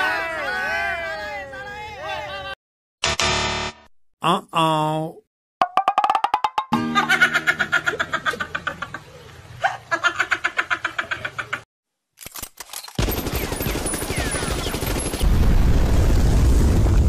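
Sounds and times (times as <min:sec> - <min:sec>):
machine-gun fire: 0:13.0 - 0:16.2.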